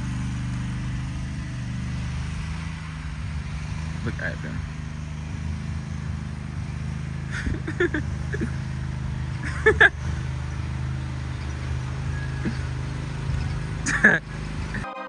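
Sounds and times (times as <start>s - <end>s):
vehicle engine drone: 0.0s - 14.9s
short pitched calls: 7.2s - 14.8s.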